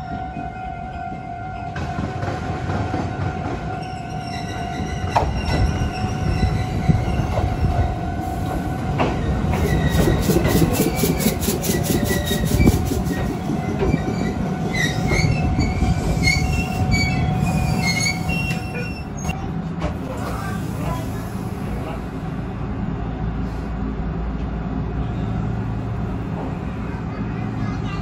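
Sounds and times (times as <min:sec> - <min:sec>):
train wheels rumbling on rail: 0:00.0 - 0:28.0
wheel and brake squeals: 0:09.5 - 0:19.4.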